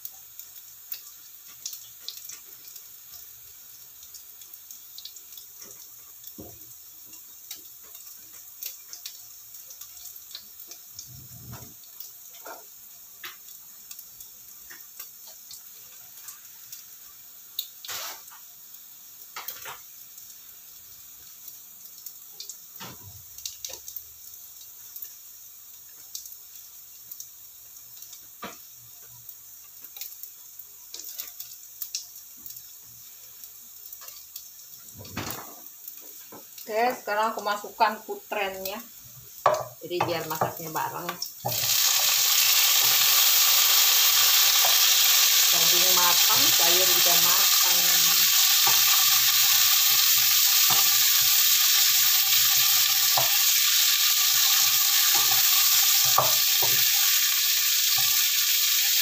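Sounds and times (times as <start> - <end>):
small pops and crackles: 0.0 - 3.3, 4.0 - 16.9, 17.5 - 20.4, 27.9 - 36.7
meat sizzling in oil: 0.0 - 59.0.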